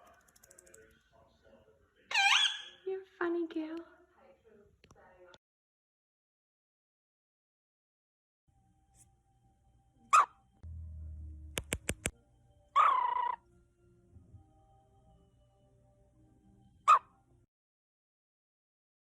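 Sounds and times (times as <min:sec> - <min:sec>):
quick clicks: 0:11.5 - 0:12.1.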